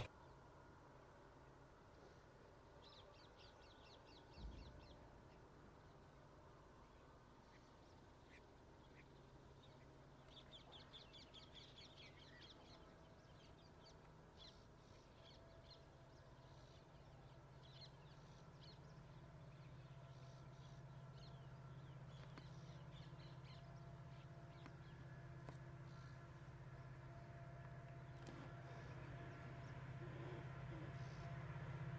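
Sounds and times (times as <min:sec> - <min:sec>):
low steady hum: 0:00.0 - 0:31.9
birds chirping: 0:09.0 - 0:31.9.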